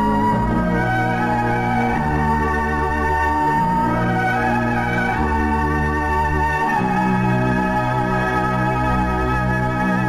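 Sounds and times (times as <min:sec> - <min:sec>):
organ-like keyboard chords: 0:00.0 - 0:10.0.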